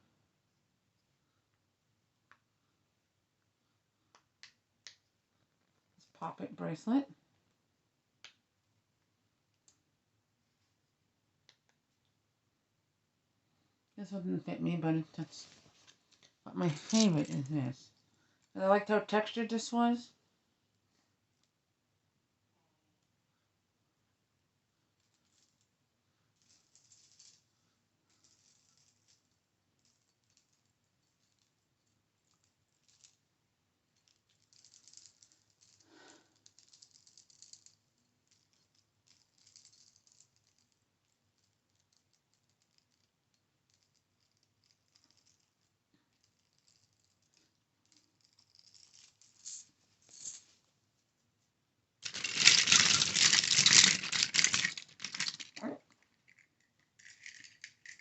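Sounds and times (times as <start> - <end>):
small items rattling: 15.2 - 17.7, 34.0 - 40.8, 43.7 - 50.6, 52.0 - 58.0.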